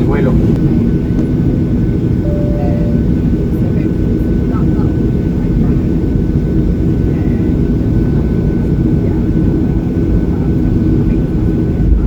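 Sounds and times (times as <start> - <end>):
airplane engines low rumble: 0.0 - 12.0
thin steady whine: 2.2 - 4.0.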